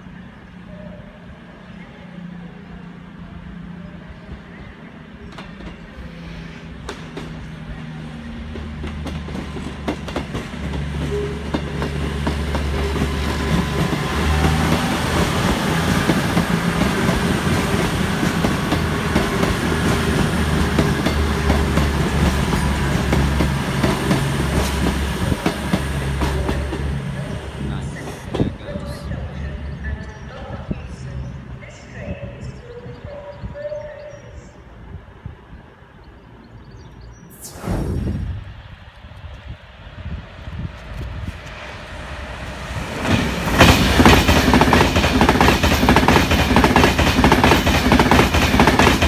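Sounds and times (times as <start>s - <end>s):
train rumbling past: 0.0s - 49.0s
train wheels clicking: 43.0s - 49.0s.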